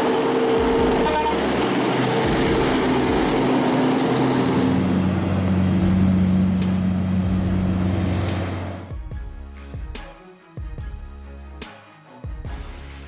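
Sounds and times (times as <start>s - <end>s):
wash of noise: 0.0s - 8.9s
heavy vehicle engine running: 0.0s - 9.0s.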